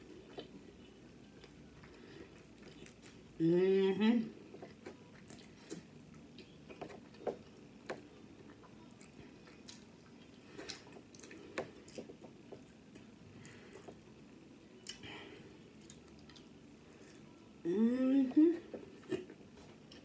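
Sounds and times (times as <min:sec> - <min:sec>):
person chewing food: 0:00.0 - 0:03.4, 0:04.4 - 0:14.1, 0:14.8 - 0:17.4.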